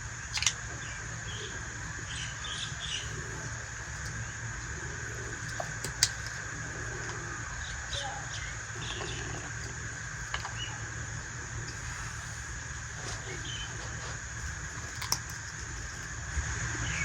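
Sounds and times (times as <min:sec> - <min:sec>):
steady low hum: 0:00.0 - 0:17.0
faint bird chirps: 0:00.2 - 0:05.8
toy pieces clicking: 0:00.3 - 0:00.6.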